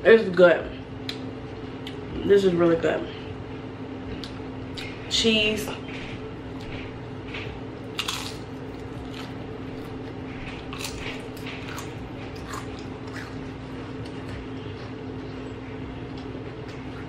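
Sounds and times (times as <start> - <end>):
low steady hum: 0.0 - 17.0
crunching chips chewing: 7.9 - 17.0.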